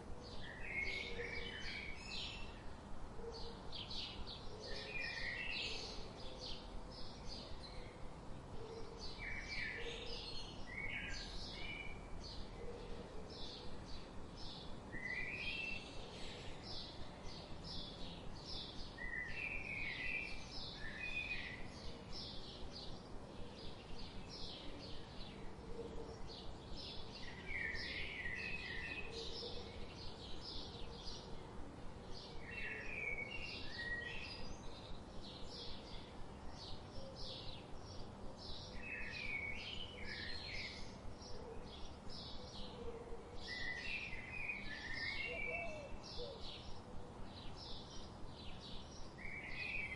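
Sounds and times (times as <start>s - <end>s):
bird warbling song: 32.2s - 49.9s.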